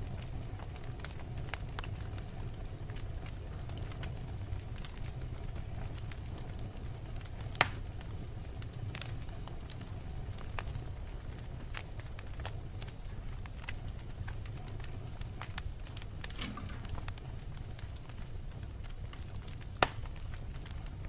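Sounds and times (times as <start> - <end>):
wood fire burning: 0.0 - 21.0
loud pop from fire: 7.6 - 7.8, 15.9 - 17.9.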